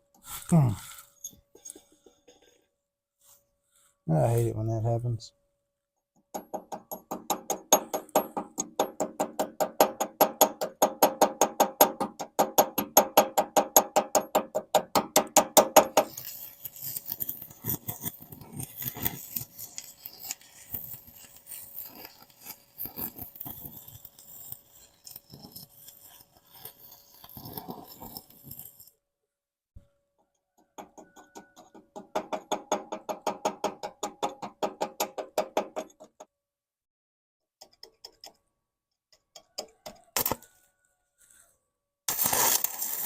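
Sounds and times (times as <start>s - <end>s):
electric welding crackling: 42.1s - 43.0s.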